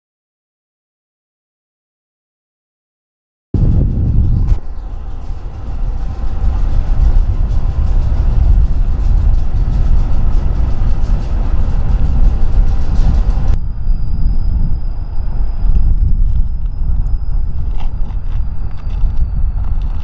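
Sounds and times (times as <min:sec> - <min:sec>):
freight train rumbling: 0:03.6 - 0:20.0
steady high whine: 0:03.6 - 0:20.0
train wheels clicking: 0:04.5 - 0:13.6, 0:14.3 - 0:20.0.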